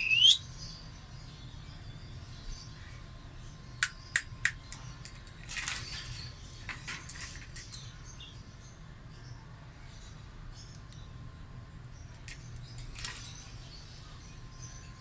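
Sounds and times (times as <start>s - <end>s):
parrot squawking: 0.0s - 0.4s.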